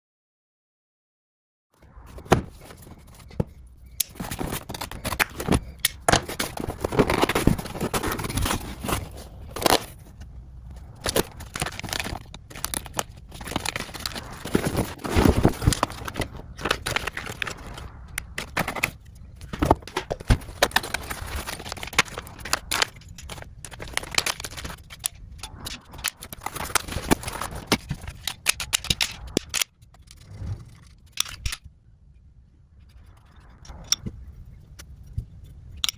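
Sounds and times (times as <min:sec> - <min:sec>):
cardboard and plastic rustling: 0:02.1 - 0:31.6
hard plastic and metal clicks: 0:02.3 - 0:10.0, 0:11.0 - 0:30.2.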